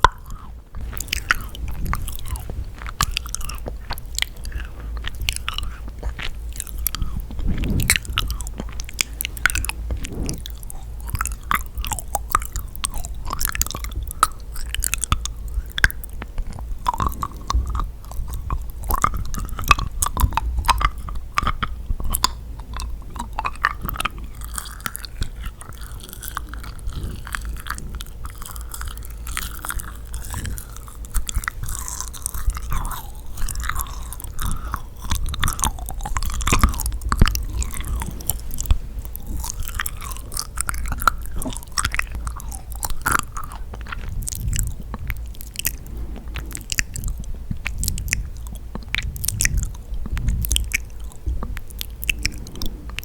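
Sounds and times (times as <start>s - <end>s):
sticky chewing and smacking: 0.0s - 53.0s.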